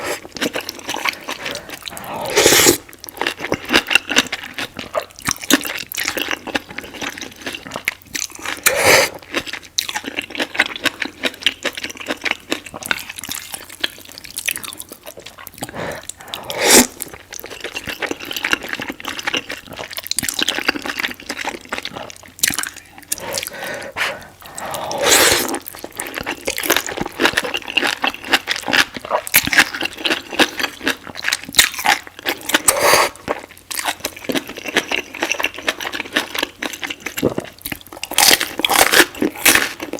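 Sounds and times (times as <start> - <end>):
noodle slurps: 0.0 - 2.9, 8.6 - 9.3, 15.6 - 17.7, 22.6 - 26.1, 32.6 - 33.3
wet chewing and smacking: 0.0 - 39.9.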